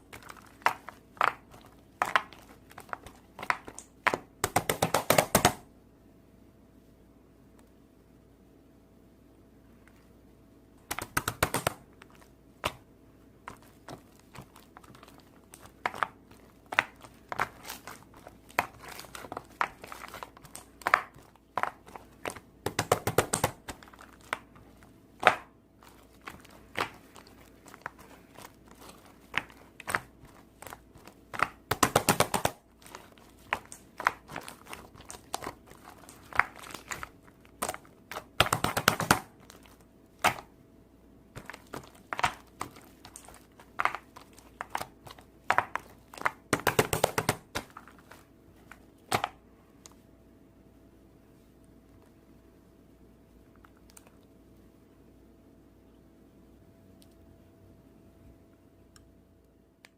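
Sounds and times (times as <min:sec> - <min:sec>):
crinkling and crackling: 0:00.0 - 0:05.6, 0:10.8 - 0:40.6, 0:41.3 - 0:50.0, 0:53.3 - 0:54.7
rustling: 0:00.0 - 0:05.6, 0:10.8 - 0:40.5, 0:41.3 - 0:50.0.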